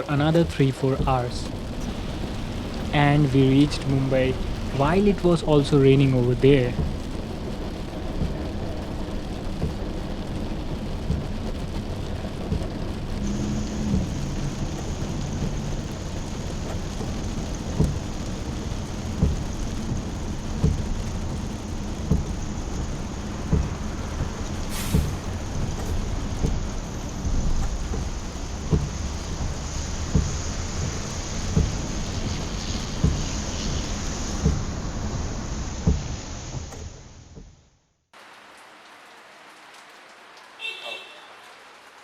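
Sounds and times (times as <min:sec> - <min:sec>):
heavy rain falling: 0:00.0 - 0:37.4, 0:38.2 - 0:42.0
dull knocks: 0:06.7 - 0:07.3, 0:08.1 - 0:08.8, 0:09.4 - 0:10.0, 0:11.0 - 0:11.4, 0:16.3 - 0:18.4, 0:19.0 - 0:32.4, 0:33.0 - 0:33.4, 0:34.4 - 0:34.7, 0:35.8 - 0:36.8.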